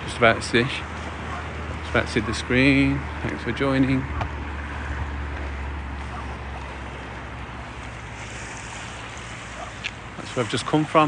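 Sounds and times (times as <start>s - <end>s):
wind rumbling on microphone: 0.8s - 11.0s
faint hiss: 7.8s - 11.0s.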